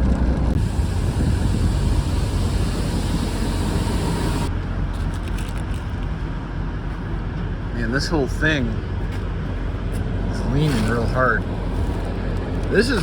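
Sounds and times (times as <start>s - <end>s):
diesel truck engine rumbling: 0.0s - 5.0s
wind hiss on microphone: 0.6s - 4.5s.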